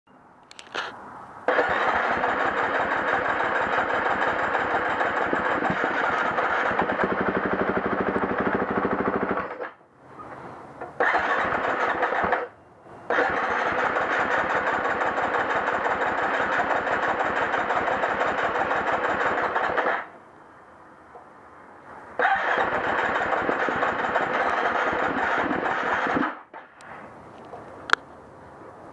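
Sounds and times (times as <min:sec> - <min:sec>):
electric starter cranking engine: 0:01.5 - 0:07.3, 0:11.0 - 0:12.5, 0:13.1 - 0:20.1, 0:22.2 - 0:26.4.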